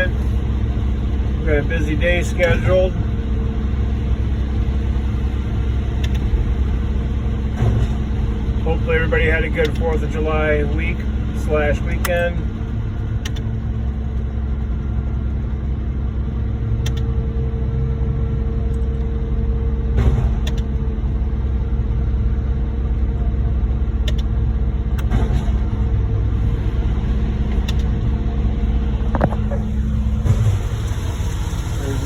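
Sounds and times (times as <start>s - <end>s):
diesel truck engines idling: 0.0s - 32.0s.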